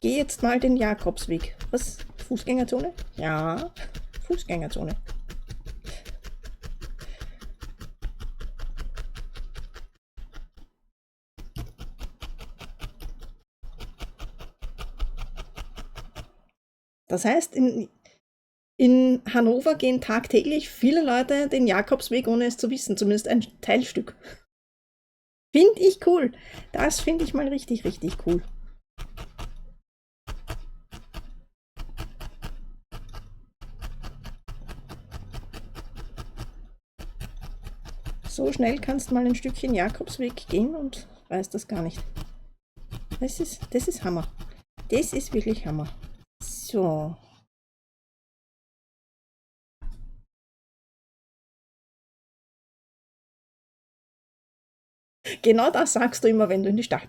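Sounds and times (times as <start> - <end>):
rapid even tapping: 0.0 - 10.0, 30.3 - 41.0.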